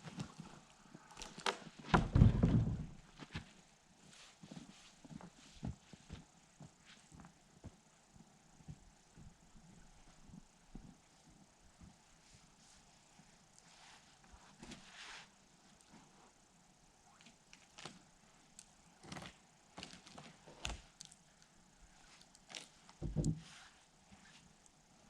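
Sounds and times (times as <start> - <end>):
heavy thump: 1.9 - 3.0
knocks and clunks: 1.9 - 3.0.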